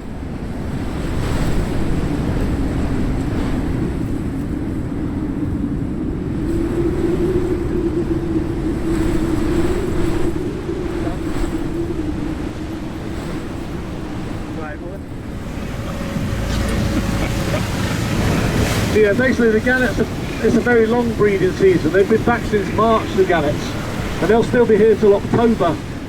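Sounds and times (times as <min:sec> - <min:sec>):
wind buffeting microphone: 0:00.0 - 0:26.0
water noise: 0:06.4 - 0:26.0
boat engine humming: 0:12.5 - 0:26.0.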